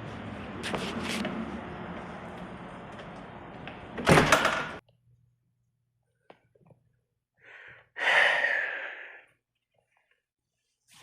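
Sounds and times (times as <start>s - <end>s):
person sighing heavily: 7.4s - 9.3s.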